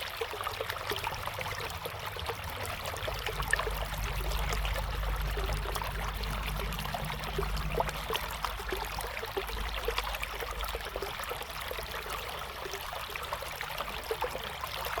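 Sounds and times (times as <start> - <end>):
river water flowing: 0.0 - 15.0
low rumble: 0.8 - 11.2.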